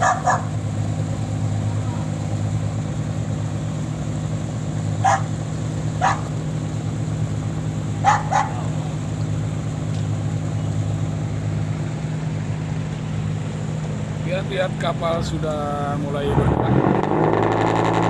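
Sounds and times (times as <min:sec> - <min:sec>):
dog barking: 0:00.0 - 0:00.6, 0:05.0 - 0:05.3, 0:06.0 - 0:06.3, 0:08.0 - 0:08.7
boat engine droning: 0:00.0 - 0:18.0.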